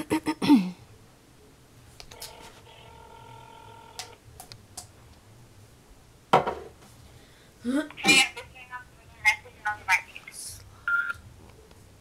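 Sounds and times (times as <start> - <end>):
telephone ringback tone: 2.1 - 4.2.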